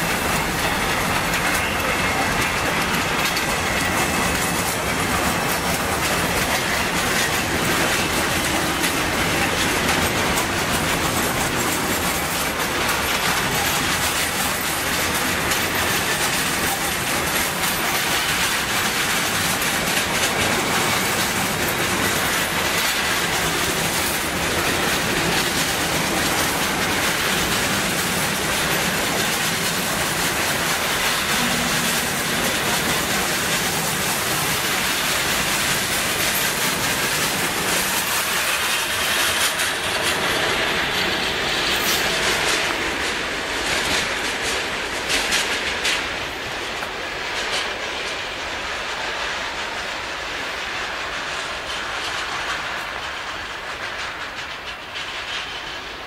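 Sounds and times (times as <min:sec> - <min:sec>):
wheels clattering over rails: 0:00.0 - 0:48.9
freight train rumbling past: 0:00.0 - 0:56.0.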